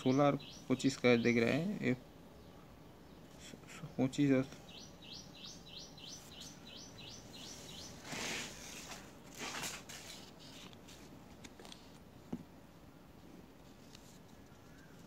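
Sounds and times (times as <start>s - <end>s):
bird chirping: 0.0s - 8.9s.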